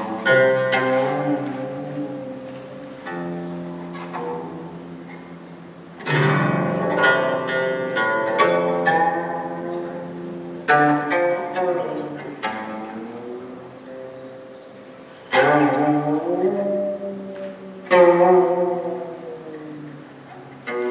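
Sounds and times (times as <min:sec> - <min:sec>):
low bowed string tones: 0:00.0 - 0:20.9
plucked zither notes: 0:00.0 - 0:20.9.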